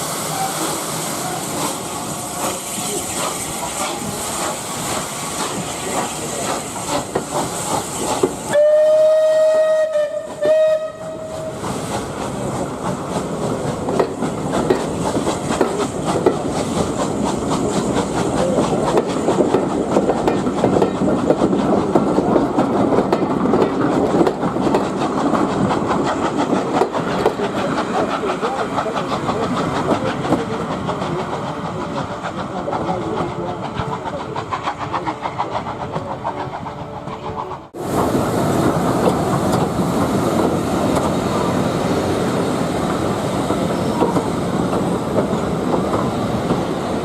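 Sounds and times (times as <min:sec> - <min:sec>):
steam locomotive hissing: 0:00.0 - 0:47.0
train rumbling: 0:00.0 - 0:47.0
train whistle blasts: 0:08.5 - 0:11.6
wheels clicking over rail joints: 0:11.6 - 0:37.4.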